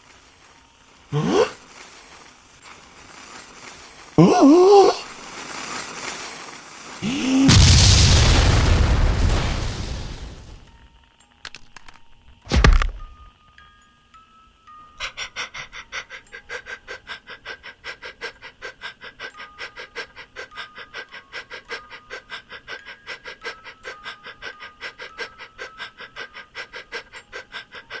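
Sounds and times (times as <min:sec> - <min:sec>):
light music: 0:00.0 - 0:07.0, 0:10.7 - 0:28.0
dog panting: 0:15.0 - 0:18.9.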